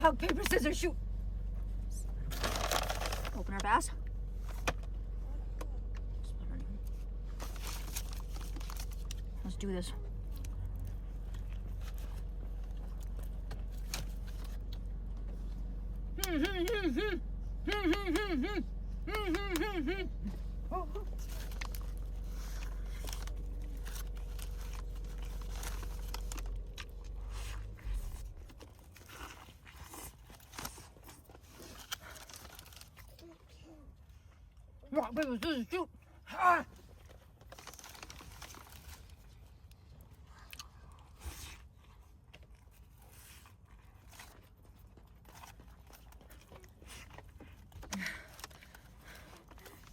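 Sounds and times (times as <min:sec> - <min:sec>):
crinkling: 0:02.2 - 0:06.1, 0:06.8 - 0:15.5, 0:20.3 - 0:33.6, 0:36.8 - 0:49.9
person chewing crunchy food: 0:21.0 - 0:33.2.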